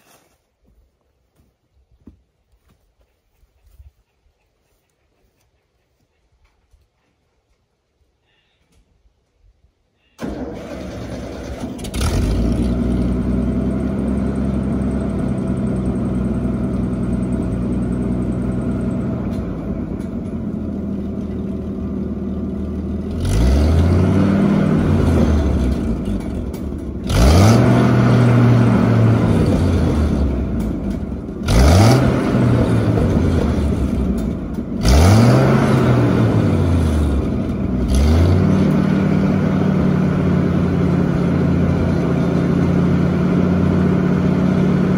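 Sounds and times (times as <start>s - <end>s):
wood chipper engine revving: 10.2s - 44.9s.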